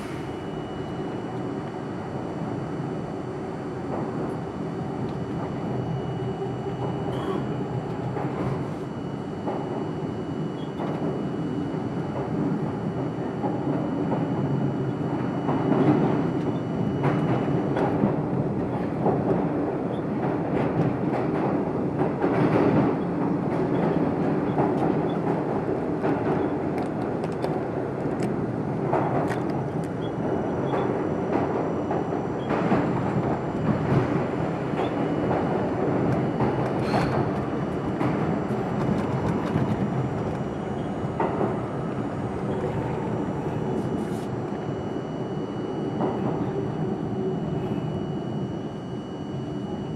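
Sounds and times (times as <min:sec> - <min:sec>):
steel wheels rumbling on rails: 0:10.8 - 0:45.2.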